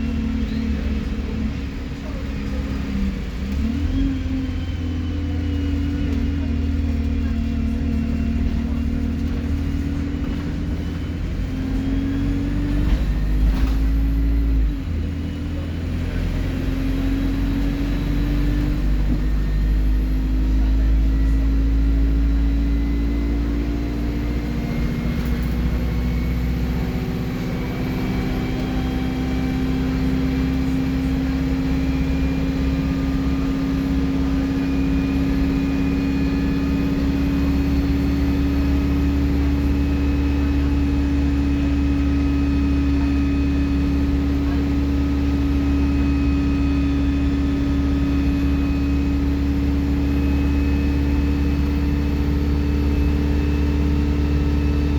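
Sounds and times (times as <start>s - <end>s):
bus engine drone: 0.0s - 54.9s.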